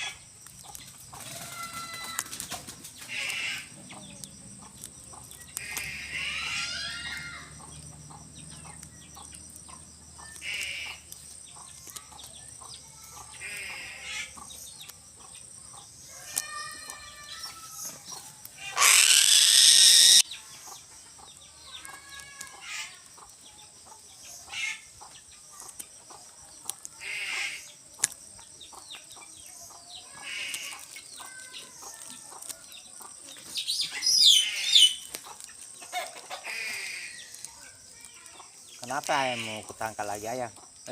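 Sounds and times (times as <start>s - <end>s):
birds clucking and squawking: 0.0s - 40.9s
loud harsh squawk: 18.6s - 20.2s.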